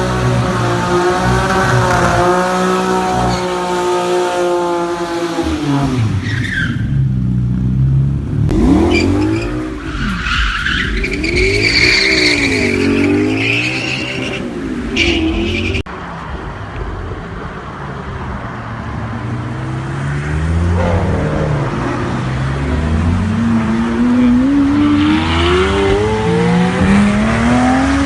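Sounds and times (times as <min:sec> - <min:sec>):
car engine revving: 0:00.0 - 0:15.9, 0:19.2 - 0:28.0
tyres squealing on tarmac: 0:08.8 - 0:15.9.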